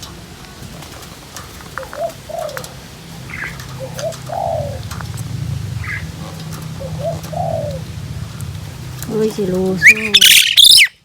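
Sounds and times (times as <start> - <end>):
dove cooing: 0.6 - 10.9
low hum: 2.5 - 10.1
bird chirps: 9.8 - 11.0.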